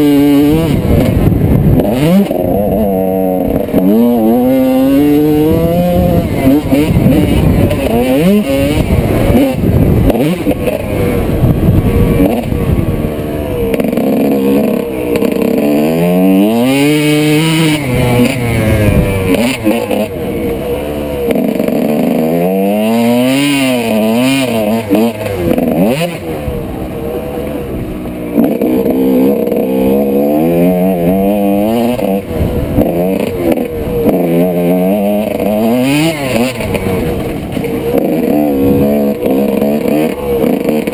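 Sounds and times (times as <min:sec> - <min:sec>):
two-stroke engine revving: 0:00.0 - 0:40.9.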